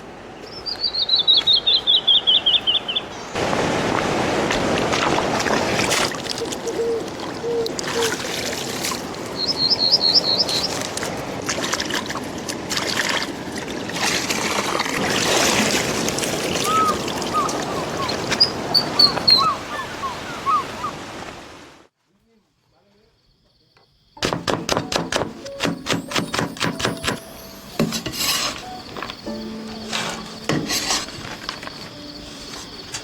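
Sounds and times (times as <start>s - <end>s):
small birds chirping: 0.4s - 3.4s, 9.3s - 11.0s, 16.5s - 21.0s
stream flowing over stones: 3.3s - 21.8s.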